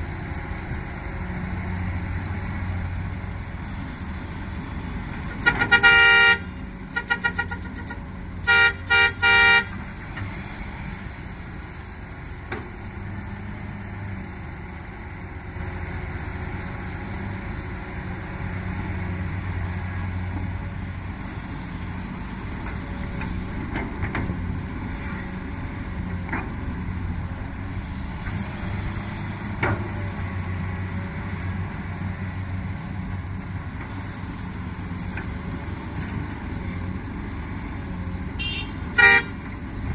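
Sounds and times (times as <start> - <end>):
excavator diesel engine running: 0.0 - 39.9
vehicle horn toots: 5.4 - 7.7, 8.5 - 9.8, 38.4 - 39.4.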